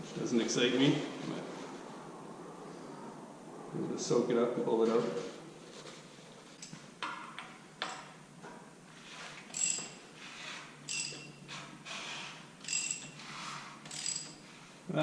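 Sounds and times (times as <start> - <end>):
metal tools clinking: 9.5 - 10.0, 10.9 - 11.4, 12.6 - 13.2, 13.8 - 14.4
short metallic rings: 9.5 - 10.1, 10.8 - 11.5, 12.6 - 14.5.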